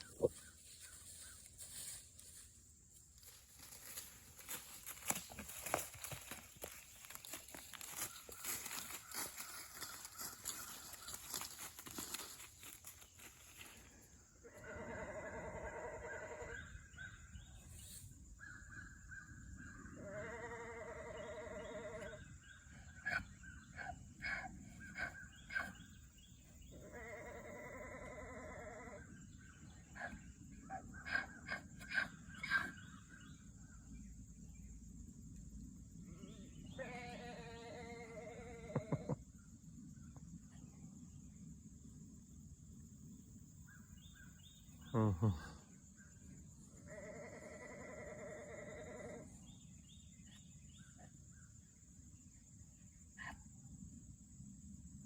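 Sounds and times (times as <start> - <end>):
farm animal bleating: 14.4 - 16.6, 20.0 - 22.2, 26.8 - 29.0, 36.1 - 39.1, 46.9 - 49.3.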